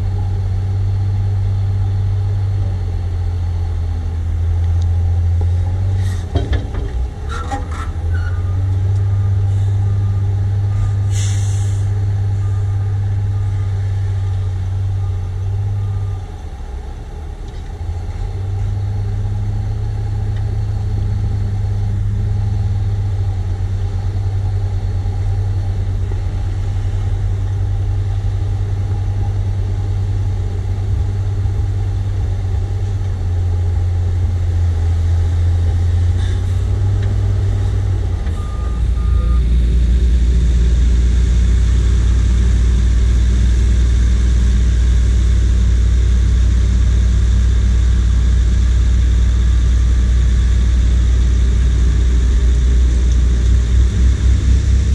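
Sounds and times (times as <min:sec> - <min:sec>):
deep diesel engine running: 0:00.0 - 0:54.9
wheel loader diesel engine under load: 0:00.0 - 0:54.9
short beeps: 0:38.3 - 0:39.6.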